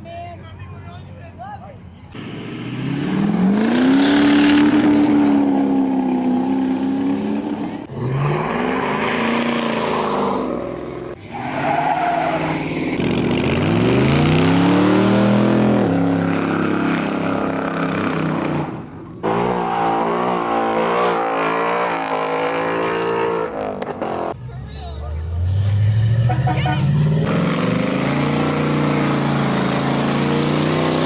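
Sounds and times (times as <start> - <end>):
car engine revving hard: 2.2 - 10.6, 13.0 - 24.2, 27.0 - 31.0.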